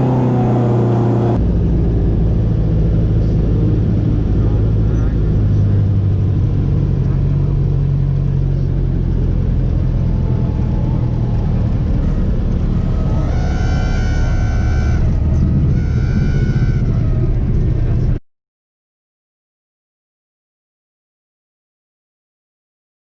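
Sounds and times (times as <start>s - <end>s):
airplane engine and propeller droning: 0.0s - 18.2s.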